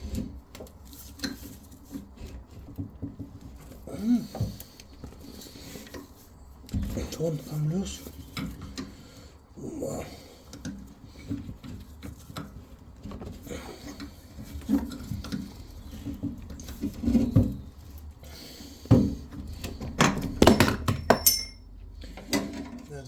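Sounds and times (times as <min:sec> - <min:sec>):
metal tools knocking and scraping: 0:19.7 - 0:23.0
sharp metallic clanks: 0:20.4 - 0:21.7.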